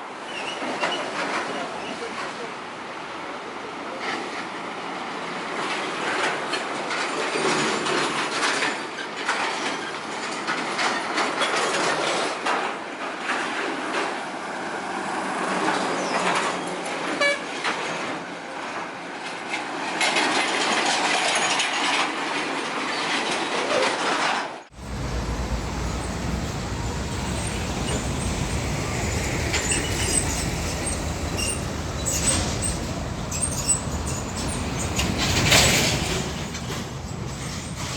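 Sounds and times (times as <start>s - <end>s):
heavy vehicle rattling past: 24.7s - 37.9s.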